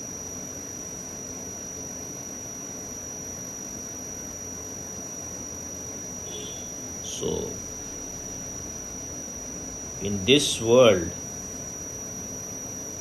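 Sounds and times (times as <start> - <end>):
high-pitched whine: 1.6 - 13.0
low hum: 6.2 - 11.6.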